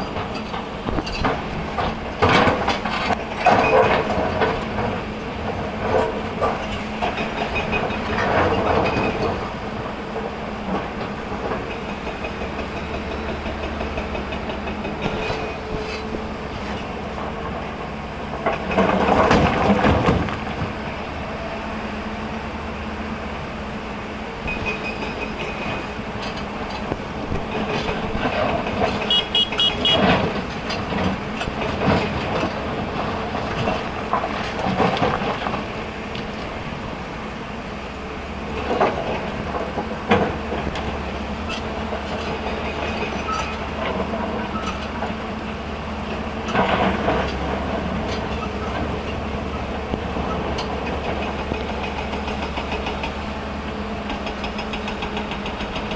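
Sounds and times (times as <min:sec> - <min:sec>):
excavator diesel engine running: 0:00.0 - 0:55.9
rocks clattering: 0:18.4 - 0:21.1, 0:25.9 - 0:36.8.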